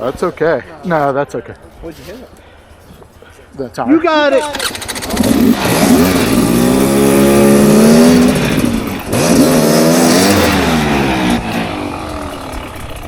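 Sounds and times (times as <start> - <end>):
dirt bike engine revving: 4.5 - 13.0.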